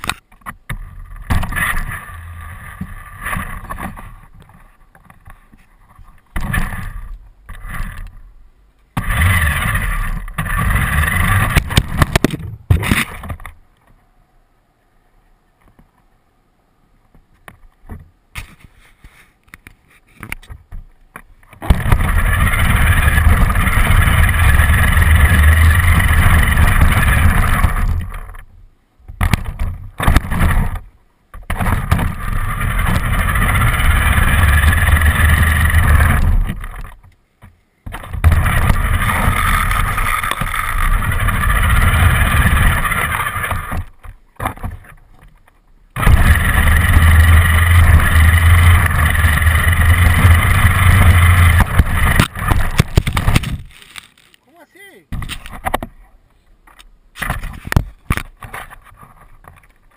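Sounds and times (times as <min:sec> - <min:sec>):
rc car motor and drivetrain running: 0:09.0 - 0:12.2, 0:21.6 - 0:28.4, 0:31.5 - 0:37.0, 0:38.0 - 0:44.0, 0:46.0 - 0:53.5.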